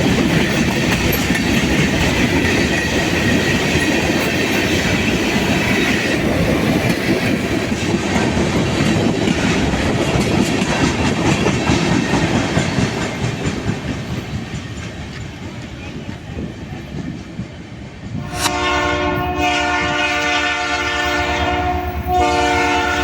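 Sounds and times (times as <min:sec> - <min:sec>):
train wheels rumbling and clattering: 0:00.0 - 0:18.3.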